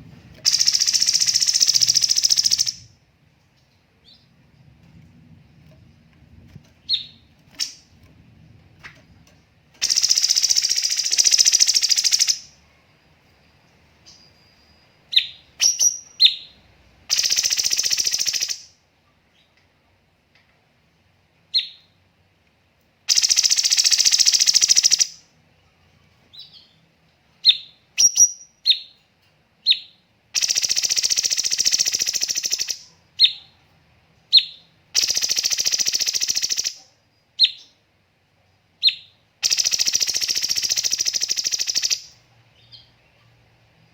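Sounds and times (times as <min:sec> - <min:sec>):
bird rapid rattling bursts: 0:00.4 - 0:02.8, 0:09.8 - 0:12.3, 0:35.0 - 0:36.7, 0:39.4 - 0:42.0.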